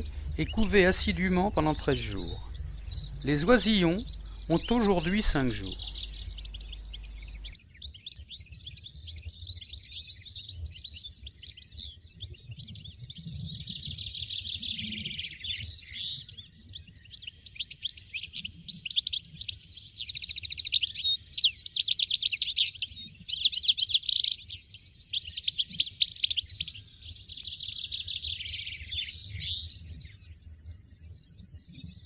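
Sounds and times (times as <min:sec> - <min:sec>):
goldfinches twittering: 0:00.0 - 0:07.6.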